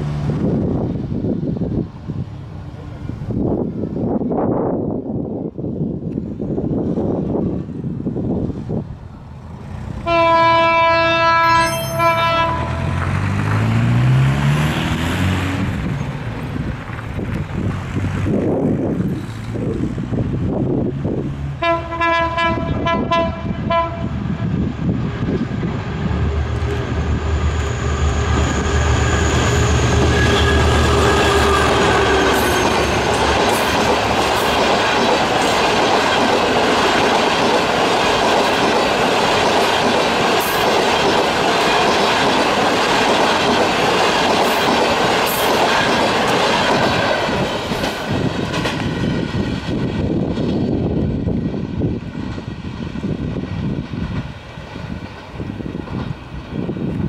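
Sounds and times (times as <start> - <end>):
diesel locomotive engine: 0.0 - 57.0
locomotive air horn blasts: 10.0 - 13.1, 21.6 - 24.2
train wheels clattering over rail joints: 25.3 - 51.2.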